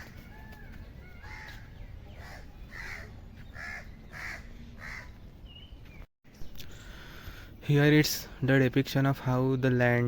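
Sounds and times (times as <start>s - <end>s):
crows cawing: 0.0s - 5.2s.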